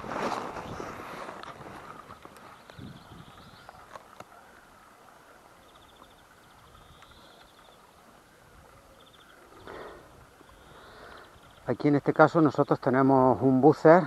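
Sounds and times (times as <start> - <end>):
brief rustle: 0.0 - 2.8.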